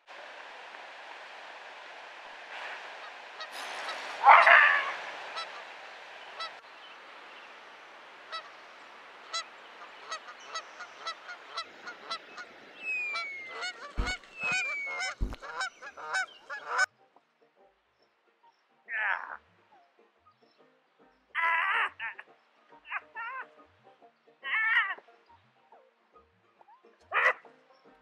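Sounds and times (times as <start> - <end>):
steady background hiss: 0.0 - 16.8
honking bird calls: 0.0 - 16.9, 26.9 - 27.6
low thumps: 13.9 - 15.6.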